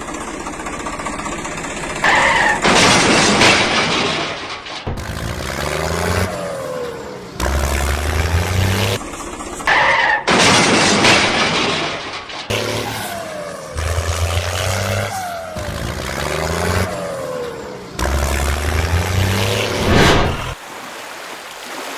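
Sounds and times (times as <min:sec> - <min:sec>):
vehicle engine revving: 0:04.9 - 0:09.0, 0:12.5 - 0:20.6.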